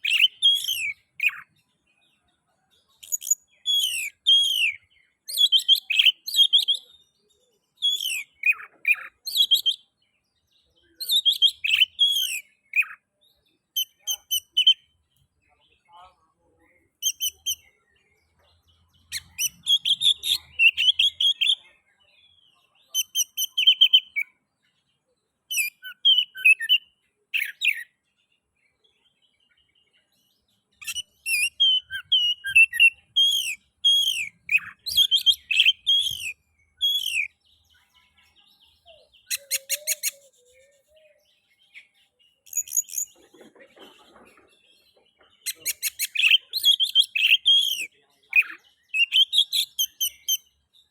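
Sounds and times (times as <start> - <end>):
bird singing whistled phrases: 0.0 - 1.5, 3.0 - 7.0, 7.8 - 9.9, 10.9 - 13.0, 19.1 - 21.7, 22.8 - 24.4, 25.5 - 27.9, 30.8 - 37.7, 38.6 - 41.9, 45.5 - 50.5.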